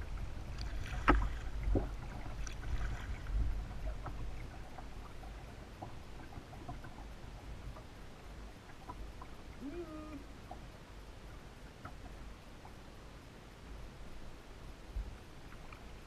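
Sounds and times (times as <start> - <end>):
paddle splashes and drips: 0.0 - 10.7
steady low rumble: 0.0 - 16.0.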